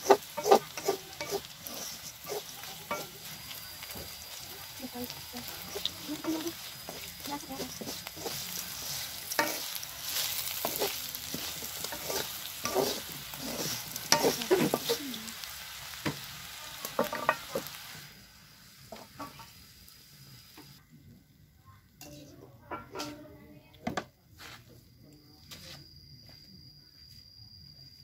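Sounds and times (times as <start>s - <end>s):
metal spatula scraping pan: 0.0s - 3.4s, 5.4s - 15.2s, 16.9s - 17.7s
grasshoppers sizzling in oil: 0.0s - 20.8s.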